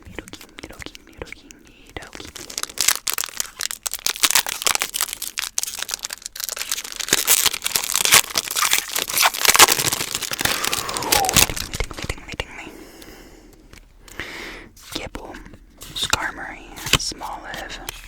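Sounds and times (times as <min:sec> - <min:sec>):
packaging crinkling: 0:00.2 - 0:12.4.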